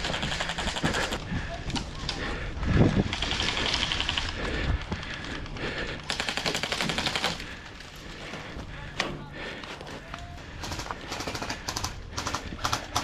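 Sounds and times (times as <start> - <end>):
airsoft guns full-auto bursts: 0.0 - 1.2, 3.0 - 4.6, 6.0 - 7.6, 10.5 - 13.0.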